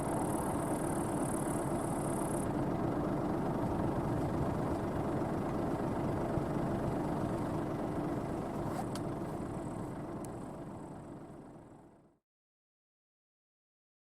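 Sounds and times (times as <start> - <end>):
combine harvester running: 0.0 - 12.2.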